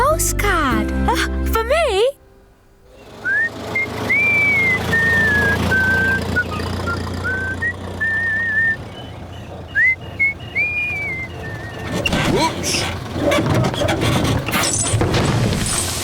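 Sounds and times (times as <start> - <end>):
vehicle engine running: 2.8 - 16.0
person whistling a tune: 3.2 - 9.1, 9.7 - 11.8.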